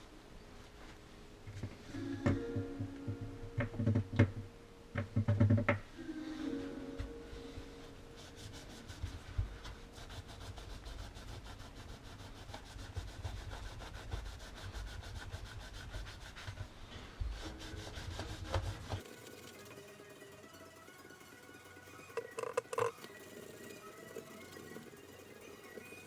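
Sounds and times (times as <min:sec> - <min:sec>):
hand rubbing strokes: 0:06.0 - 0:19.4.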